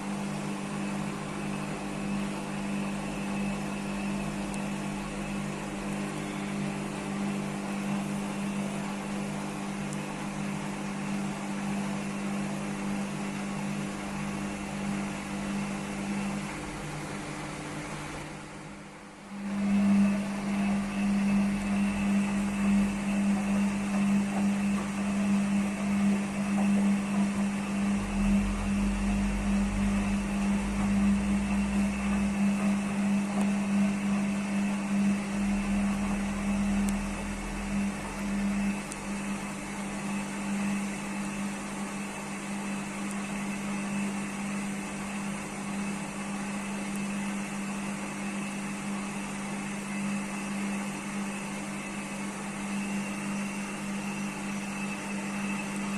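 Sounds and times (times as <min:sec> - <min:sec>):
washing machine motor hum: 0:00.0 - 0:55.9.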